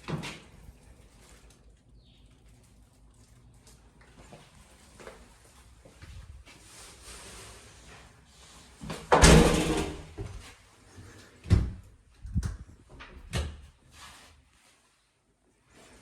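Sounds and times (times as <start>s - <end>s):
door opening and shutting: 9.1s - 10.2s.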